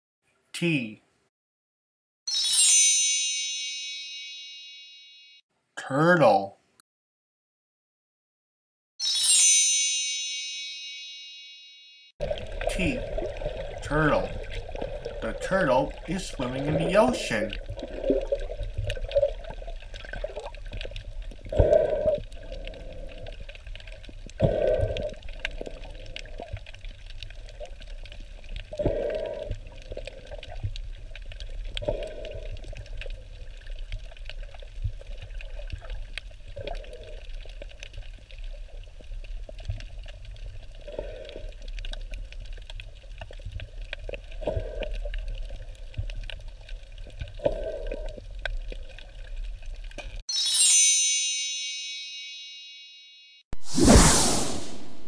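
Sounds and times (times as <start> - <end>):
water sloshing and splashing: 12.2 - 50.2.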